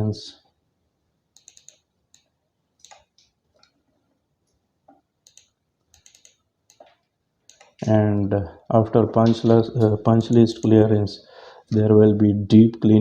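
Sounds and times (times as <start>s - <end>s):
computer keyboard keystrokes: 1.4s - 3.4s, 5.2s - 7.9s.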